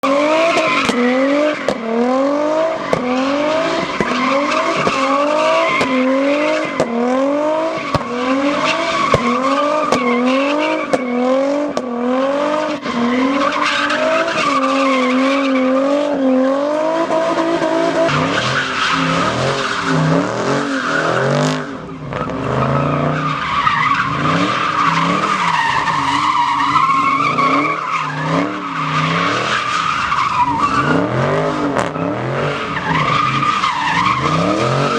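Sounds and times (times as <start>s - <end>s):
engine at high revs: 0.0s - 13.4s, 34.0s - 34.9s
tires skidding and squealing: 0.0s - 34.9s.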